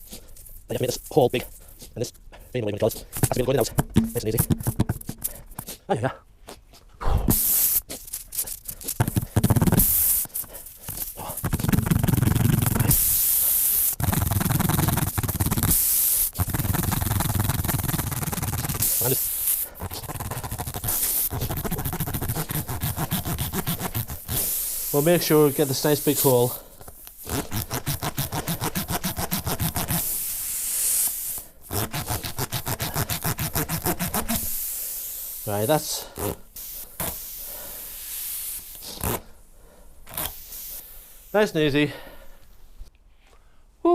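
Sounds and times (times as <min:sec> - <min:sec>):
air hissing from tyre: 0:07.2 - 0:28.9, 0:29.6 - 0:39.3, 0:40.1 - 0:41.4
reamer rasping in tyre: 0:14.0 - 0:26.5.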